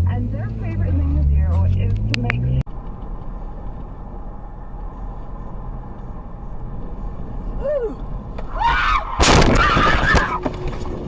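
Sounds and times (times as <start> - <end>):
car road and engine noise: 0.0 - 11.0
high-pitched shrieks: 7.6 - 10.5
loud crash-like bang: 9.2 - 10.4.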